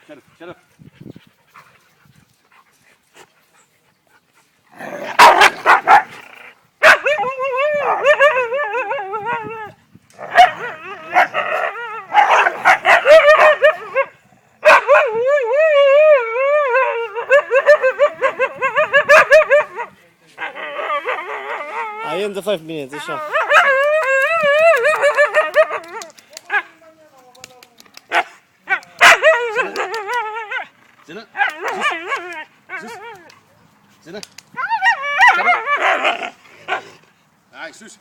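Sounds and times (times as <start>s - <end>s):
dogs barking and yipping: 4.4s - 9.6s, 10.2s - 22.2s, 22.9s - 26.7s, 28.1s - 33.7s, 34.5s - 37.0s
dogs whine-howling: 14.8s - 19.8s, 20.5s - 22.2s, 34.6s - 36.3s.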